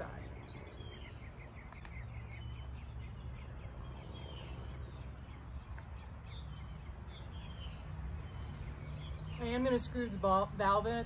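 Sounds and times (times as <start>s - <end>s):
bird chirping: 0.0s - 11.0s
faint clicks: 1.6s - 2.0s.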